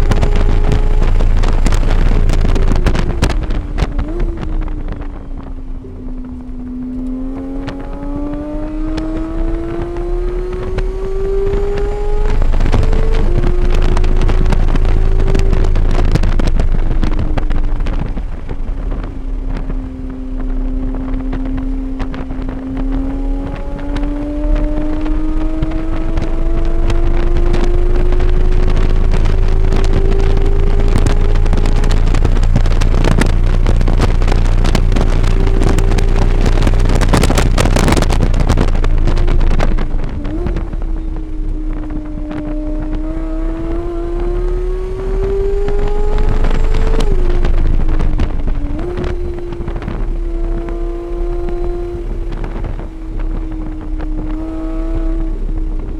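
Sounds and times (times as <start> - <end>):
race car engine revving: 0.0 - 55.9
wind buffeting microphone: 0.0 - 55.9.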